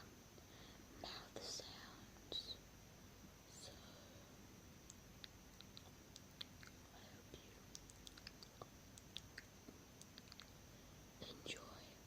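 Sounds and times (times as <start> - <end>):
wet mouth clicks and smacks: 4.8 - 6.8, 7.7 - 10.6.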